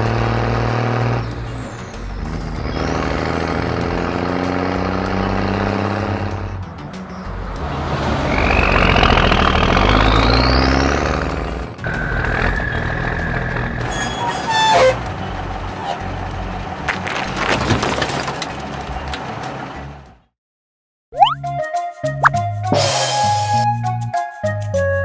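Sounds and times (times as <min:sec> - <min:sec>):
truck engine running: 0:00.0 - 0:20.3
background music: 0:01.3 - 0:08.8, 0:21.2 - 0:25.0
rising whoosh: 0:07.5 - 0:11.4
clatter and knocks: 0:16.9 - 0:18.8.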